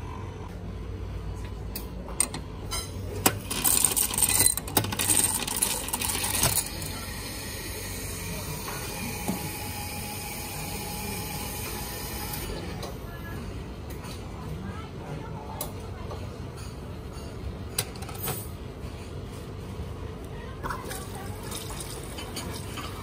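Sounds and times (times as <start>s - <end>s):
ice cubes rattling into cup: 3.5s - 6.9s.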